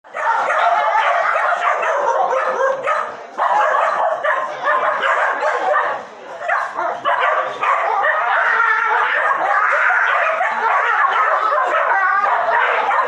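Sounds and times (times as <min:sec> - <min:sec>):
dogs snarling and yelping: 0:06.6 - 0:13.0.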